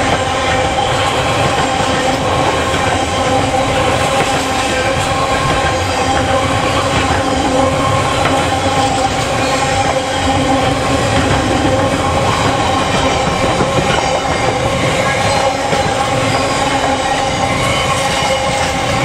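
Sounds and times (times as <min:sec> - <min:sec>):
freight train passing: 0:00.0 - 0:19.0.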